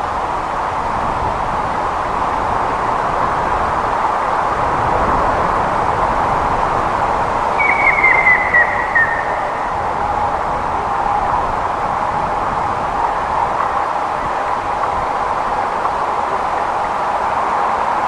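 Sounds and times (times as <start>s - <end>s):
steady rushing noise: 0.0s - 18.0s
woodpecker whistled calls: 7.6s - 9.8s.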